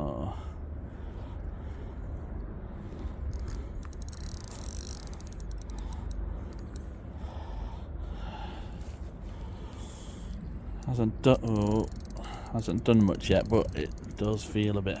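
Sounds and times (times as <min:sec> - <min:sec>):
fishing reel clicking: 0:03.3 - 0:06.8, 0:10.8 - 0:15.0.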